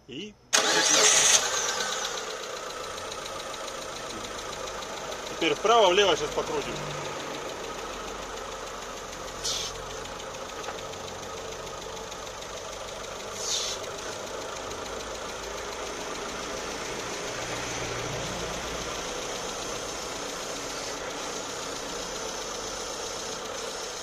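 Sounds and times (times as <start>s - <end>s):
car engine idling: 0.2s - 24.0s
short hiss: 9.4s - 9.8s, 13.4s - 13.8s.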